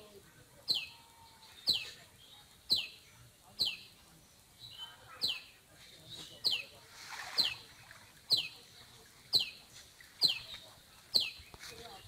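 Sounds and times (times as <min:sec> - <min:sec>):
net splashing into water: 0:06.9 - 0:08.1.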